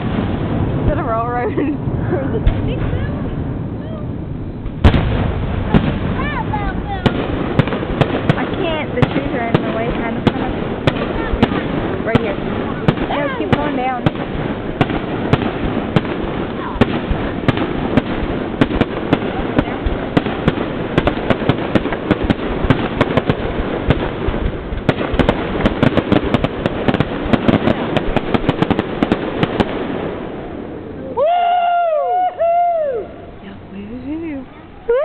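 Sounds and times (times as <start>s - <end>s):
fireworks bangs and crackles: 0.0s - 35.0s
people whooping and cheering: 31.1s - 33.3s, 34.8s - 35.0s.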